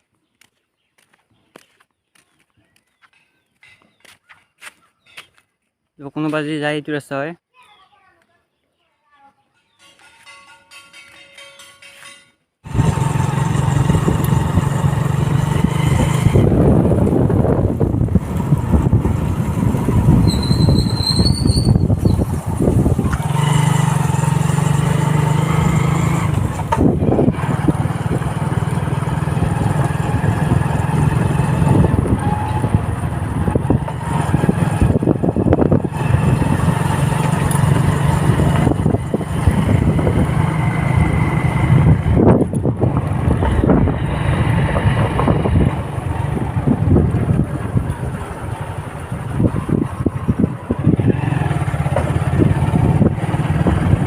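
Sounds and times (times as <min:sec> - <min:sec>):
vehicle engine running: 0:12.7 - 0:21.0, 0:21.9 - 0:54.0.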